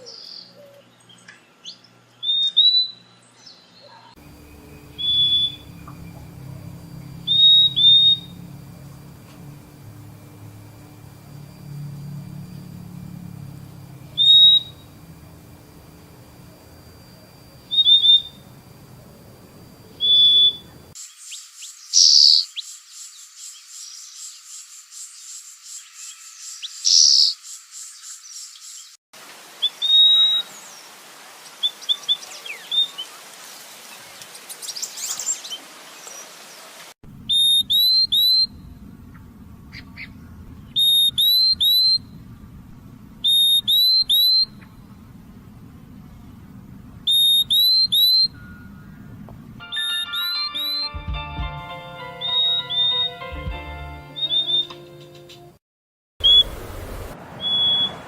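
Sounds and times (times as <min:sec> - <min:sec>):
bird high whistled calls: 0:02.2 - 0:03.1, 0:04.3 - 0:08.5, 0:14.1 - 0:15.0, 0:17.6 - 0:18.5, 0:19.9 - 0:24.4, 0:29.6 - 0:30.6, 0:37.3 - 0:38.7, 0:39.7 - 0:42.1, 0:43.2 - 0:44.8, 0:47.1 - 0:49.1, 0:49.7 - 0:51.0, 0:52.2 - 0:53.2, 0:54.2 - 0:54.8, 0:57.4 - 0:58.0.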